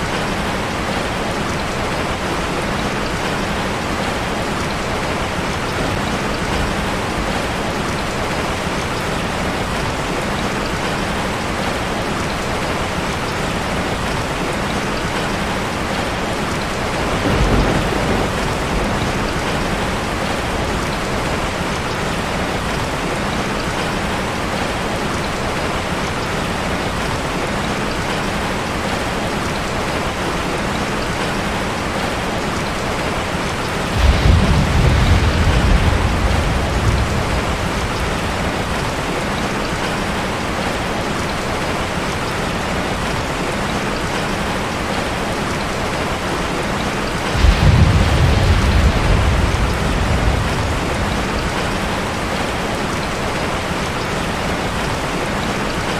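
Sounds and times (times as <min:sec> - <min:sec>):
rain drumming on metal roof: 0:00.0 - 0:55.9
low rumble of thunder: 0:13.9 - 0:22.8, 0:33.6 - 0:40.2, 0:47.1 - 0:53.6.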